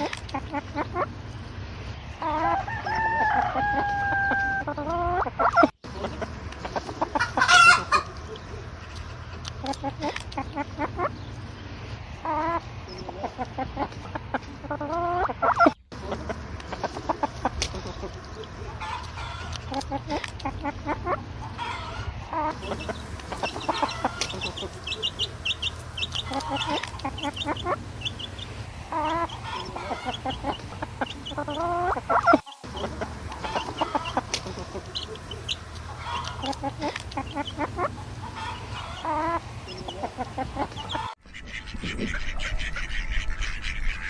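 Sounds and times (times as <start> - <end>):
chicken squawk: 2.2 - 5.7, 7.1 - 8.1, 18.8 - 19.9, 20.6 - 44.0
chickens clucking: 2.2 - 11.5, 12.2 - 44.0
rooster crowing: 2.4 - 4.6, 22.6 - 41.2.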